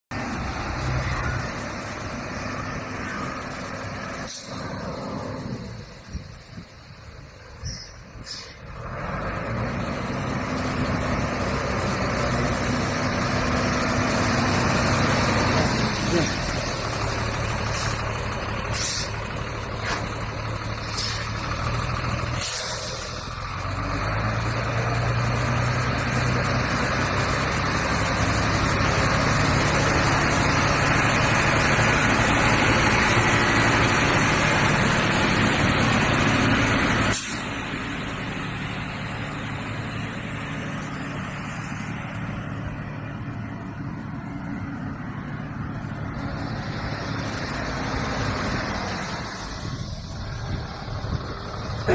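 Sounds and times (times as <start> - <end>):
diesel truck engine running: 0.1 - 51.9
brief hiss: 8.2 - 8.6.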